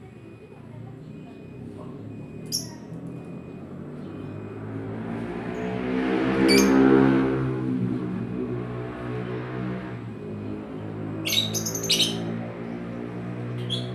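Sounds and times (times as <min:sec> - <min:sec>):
vehicle passing by: 0:00.2 - 0:13.9
bird chirp: 0:06.4 - 0:07.1, 0:11.1 - 0:13.9.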